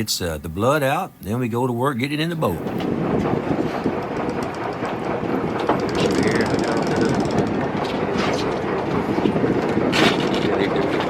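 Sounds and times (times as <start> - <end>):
steady low rumble: 0.0 - 11.0
mechanical clicking and clatter: 2.6 - 11.0.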